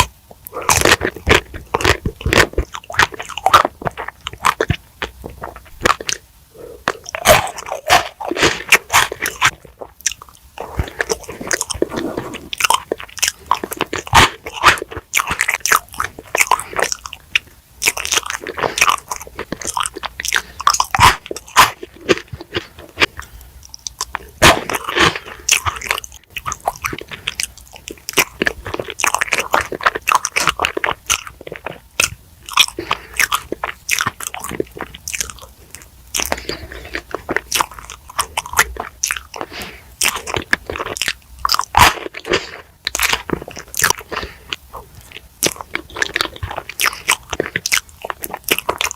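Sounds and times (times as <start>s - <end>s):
person biting and chewing food: 0.0s - 48.9s.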